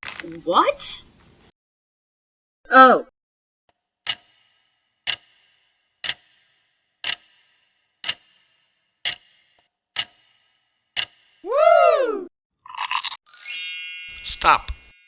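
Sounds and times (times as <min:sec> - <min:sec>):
clock-like ticking: 0:04.1 - 0:11.4.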